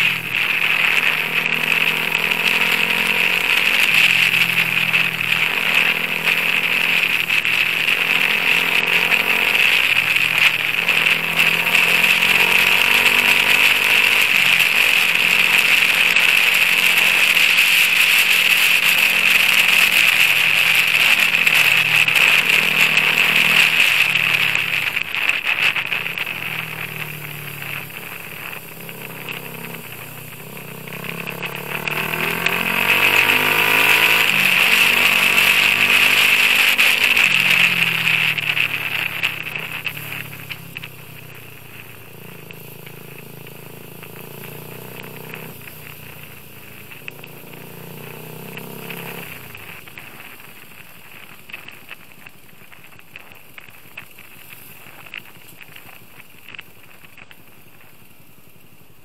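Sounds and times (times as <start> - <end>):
motorcycle engine revving: 0.0 - 59.0
steady high hiss: 0.0 - 59.0.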